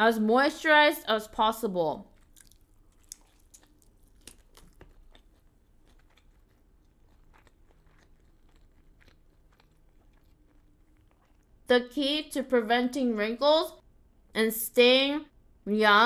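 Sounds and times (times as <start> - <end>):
person chewing crunchy food: 2.0 - 11.7.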